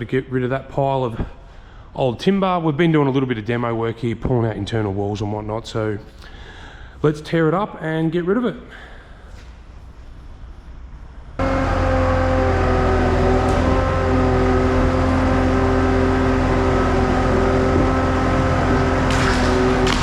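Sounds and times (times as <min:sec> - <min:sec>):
engine running at high revs: 0:11.4 - 0:20.0.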